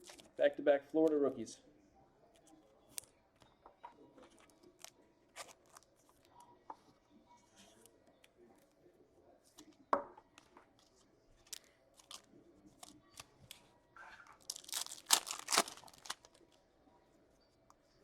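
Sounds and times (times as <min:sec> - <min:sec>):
wrapper crinkling rip: 0:14.4 - 0:16.5.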